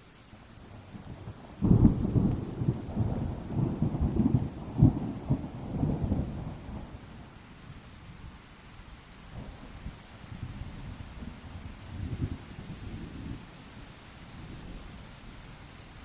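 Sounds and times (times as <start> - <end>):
steady rain: 0.0 - 16.0
thunder crack and rumble: 0.6 - 7.8, 9.3 - 13.5.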